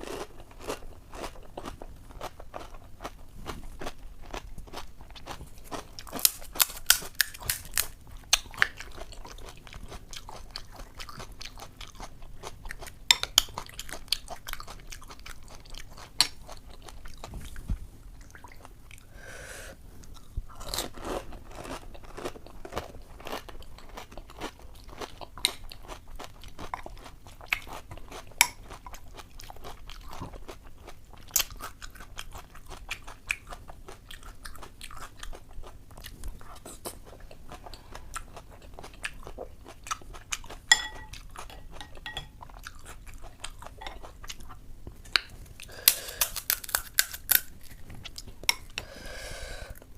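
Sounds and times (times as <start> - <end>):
crisp shells cracking when bitten: 6.1 - 8.5, 45.7 - 47.8
wet chewing: 20.0 - 48.8.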